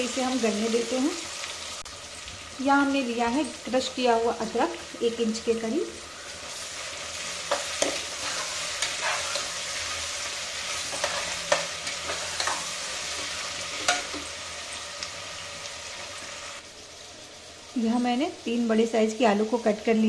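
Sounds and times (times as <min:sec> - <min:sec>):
vegetables sizzling in oil: 0:00.0 - 0:20.0
metal spoon scraping pot: 0:07.5 - 0:09.9, 0:10.7 - 0:14.2.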